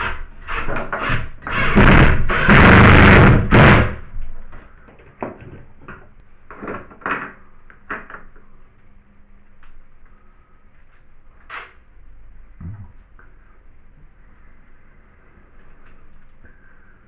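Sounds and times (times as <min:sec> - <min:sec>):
power drill driving screw: 0:00.0 - 0:03.9.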